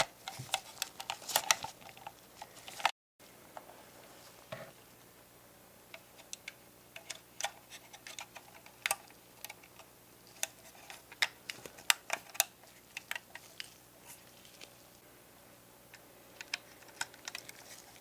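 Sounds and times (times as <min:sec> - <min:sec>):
small plastic parts clicking: 0:00.0 - 0:02.9, 0:05.9 - 0:13.7, 0:15.9 - 0:18.0.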